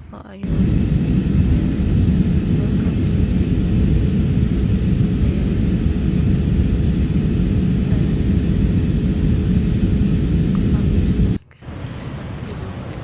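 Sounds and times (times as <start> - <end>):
airliner engines droning: 0.0 - 13.0
faint steady hum: 0.0 - 13.0.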